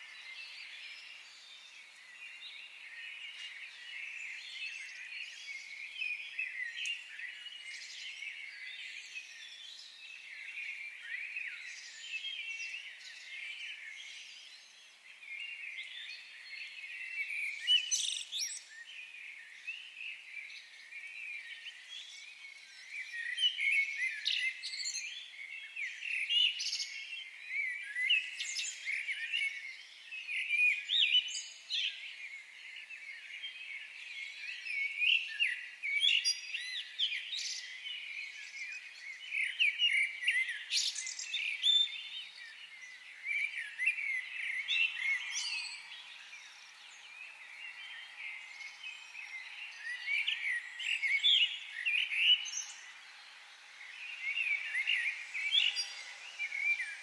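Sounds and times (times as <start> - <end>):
birds singing and chirping: 0.0 - 57.0.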